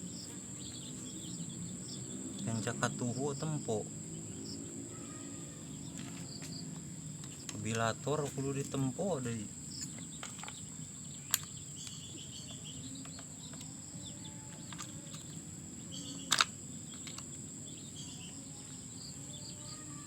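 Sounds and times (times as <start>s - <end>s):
faint chirps: 0.0s - 20.0s
high-pitched insect trill: 0.0s - 20.0s
sharp clicks: 16.2s - 17.3s.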